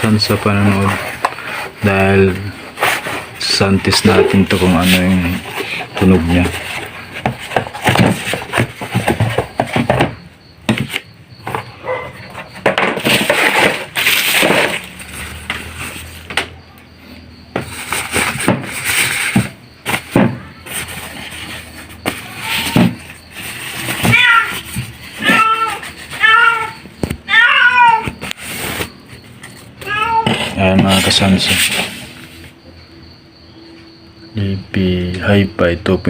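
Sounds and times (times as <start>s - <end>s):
packaging rustling: 12.7s - 16.1s
cat meowing: 22.2s - 23.0s, 24.0s - 28.2s, 29.8s - 30.4s.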